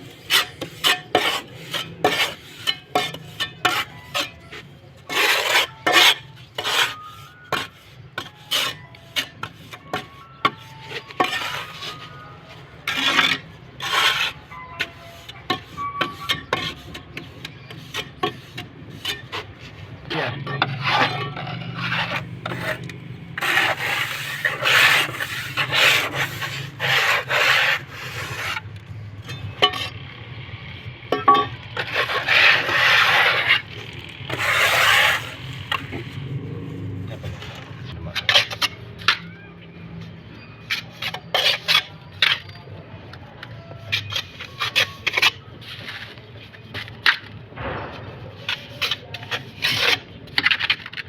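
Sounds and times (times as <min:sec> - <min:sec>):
tool scraping hard surface: 0:00.2 - 0:30.0, 0:31.1 - 0:36.4.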